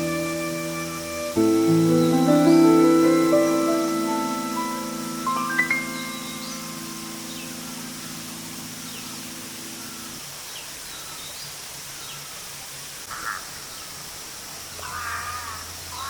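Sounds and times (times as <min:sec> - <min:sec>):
low music notes: 0:00.0 - 0:10.1
crow cawing: 0:13.1 - 0:13.5, 0:14.8 - 0:16.0.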